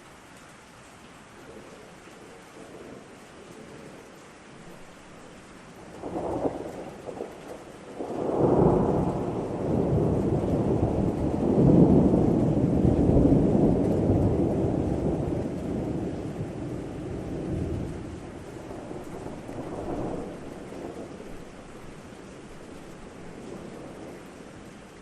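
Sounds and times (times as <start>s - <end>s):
steady rain: 0.0s - 25.0s
thunder rumbling: 5.8s - 24.8s.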